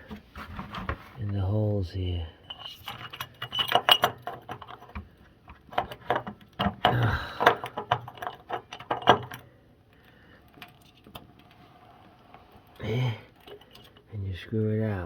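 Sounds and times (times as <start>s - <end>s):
metal tools clinking and knocking: 2.4s - 5.0s, 13.3s - 14.1s.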